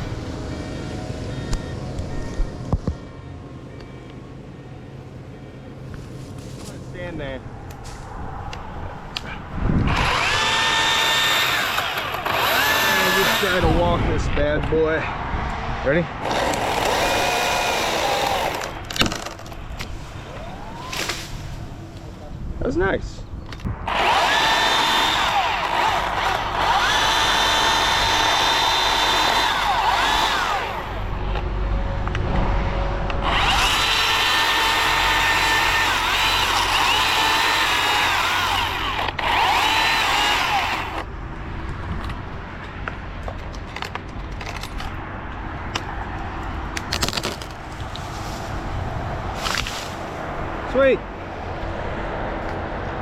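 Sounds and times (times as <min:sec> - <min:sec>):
chainsaw motor whining: 0:09.8 - 0:13.9, 0:16.2 - 0:19.3, 0:20.3 - 0:21.3, 0:23.8 - 0:31.2, 0:33.2 - 0:41.1.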